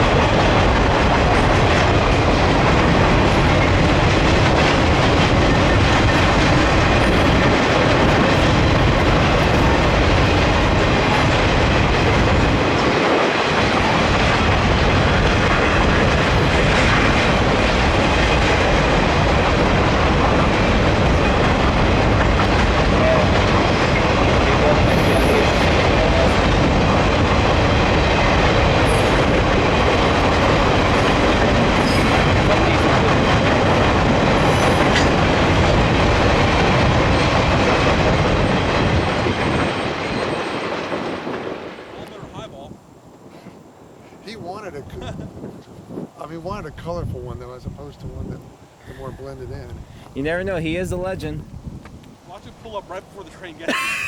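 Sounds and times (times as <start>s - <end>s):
train wheels clattering on rails: 0.0s - 42.5s.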